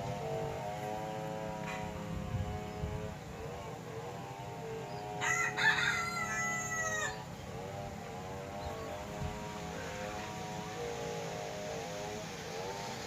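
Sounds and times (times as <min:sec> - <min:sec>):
steady hum: 0:00.0 - 0:06.4, 0:07.0 - 0:13.0
rooster crowing: 0:05.2 - 0:07.3.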